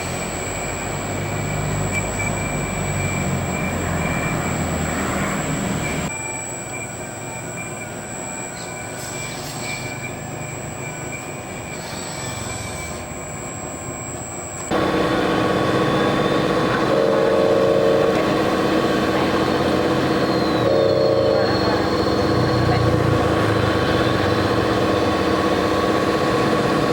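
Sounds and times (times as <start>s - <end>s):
small electric motors whining: 11.5s - 26.9s.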